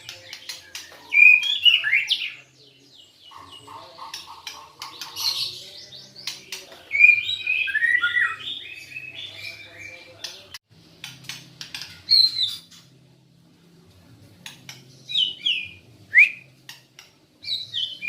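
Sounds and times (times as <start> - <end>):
bird whistling song: 6.9 - 9.7, 15.1 - 16.5, 17.4 - 18.0.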